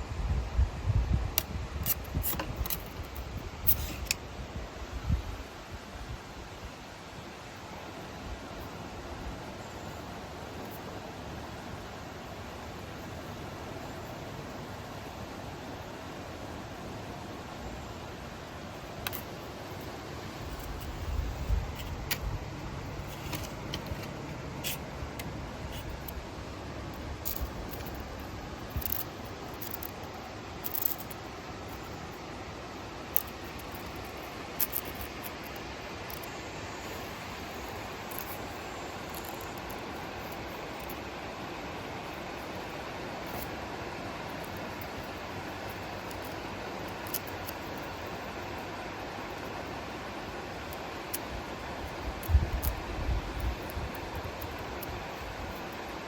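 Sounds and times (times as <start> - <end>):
wind rumble on microphone: 0.0 - 3.8, 4.4 - 6.7, 20.3 - 23.7, 52.0 - 55.5
steady hiss: 0.0 - 56.0
twigs and leaves rustling: 18.8 - 32.0.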